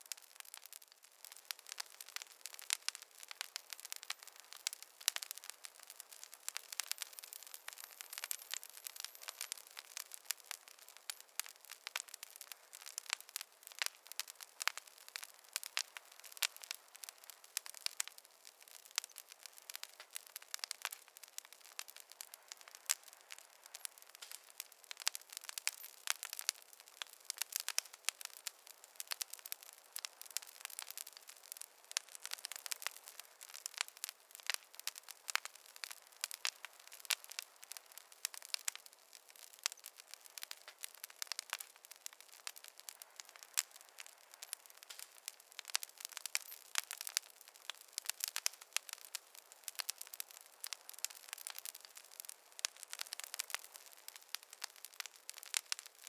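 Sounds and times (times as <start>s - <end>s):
campfire crackling: 0.0s - 56.0s
faint hiss: 0.0s - 56.0s.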